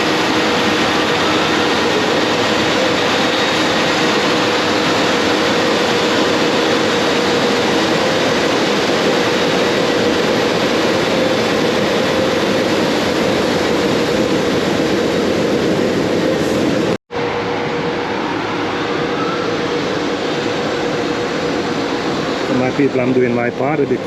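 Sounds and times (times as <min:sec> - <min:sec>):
motor blowing air with whine: 0:00.0 - 0:24.0.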